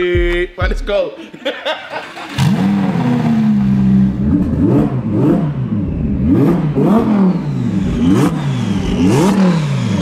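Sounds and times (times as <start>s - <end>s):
car engine revving: 2.0s - 10.0s.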